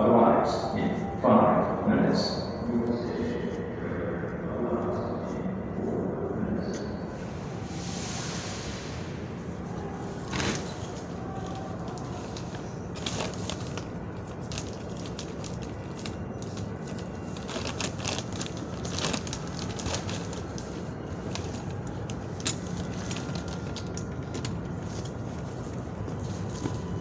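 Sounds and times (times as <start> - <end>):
subway station hum: 0.0 - 27.0
crackles and rustles: 10.2 - 27.0.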